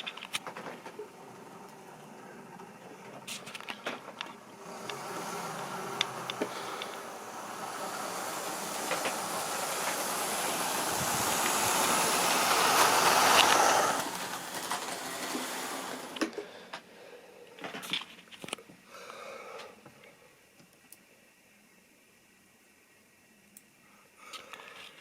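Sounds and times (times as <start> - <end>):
model train running on track: 0.0 - 16.4.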